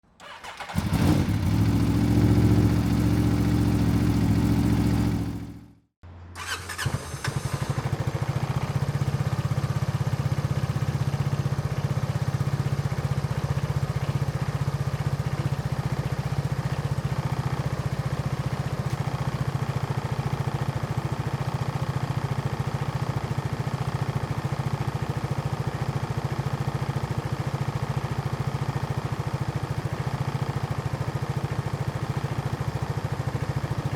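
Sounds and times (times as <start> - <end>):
scooter starter burst: 0.2 - 1.4, 6.4 - 8.1
scooter engine idling: 0.2 - 5.8, 6.4 - 33.9.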